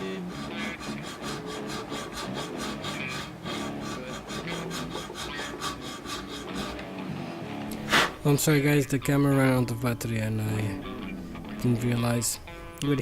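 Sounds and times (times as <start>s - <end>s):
file rubbing back and forth: 0.0s - 8.3s.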